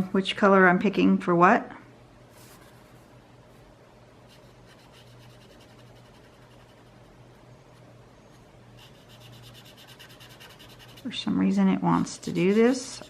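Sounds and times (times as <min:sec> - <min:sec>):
steady low hum: 0:00.0 - 0:13.0
drawing tool scratching paper: 0:08.8 - 0:11.1, 0:12.2 - 0:13.0.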